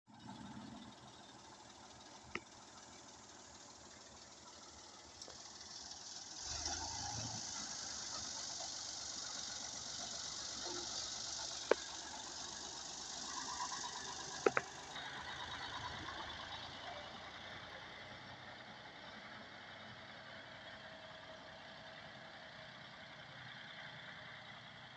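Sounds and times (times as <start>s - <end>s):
tractor engine running: 0.1s - 24.9s
sharp clicks: 14.3s - 15.0s.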